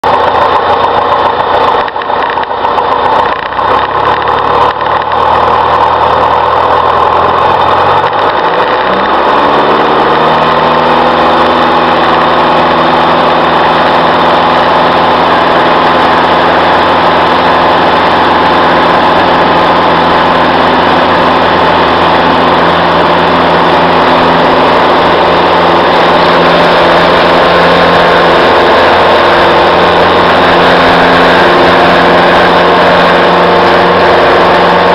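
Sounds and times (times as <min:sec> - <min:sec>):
aircraft engine running: 0:00.0 - 0:34.9.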